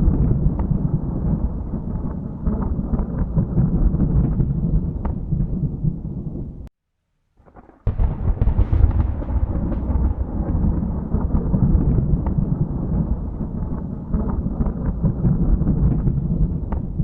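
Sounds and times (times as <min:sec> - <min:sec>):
thunder rumbling: 0:00.0 - 0:06.7, 0:07.4 - 0:17.0
thunderclap: 0:00.0 - 0:06.7, 0:07.4 - 0:17.0.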